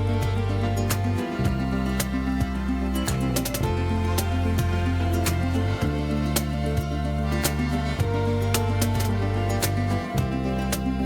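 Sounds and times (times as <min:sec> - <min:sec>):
gentle instrumental music: 0:00.0 - 0:11.0.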